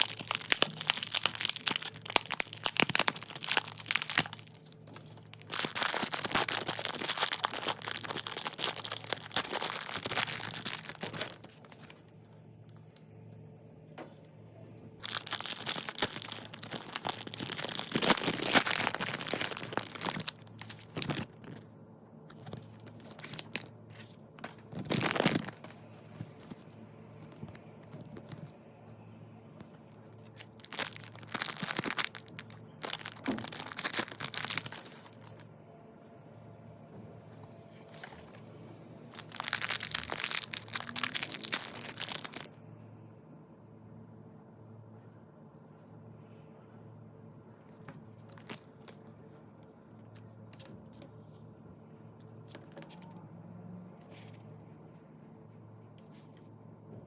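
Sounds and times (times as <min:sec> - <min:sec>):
packaging crinkling and tearing: 0:00.0 - 0:12.0, 0:15.0 - 0:21.7, 0:22.3 - 0:28.5, 0:30.2 - 0:35.4, 0:37.7 - 0:38.4, 0:39.1 - 0:42.5, 0:48.2 - 0:49.0.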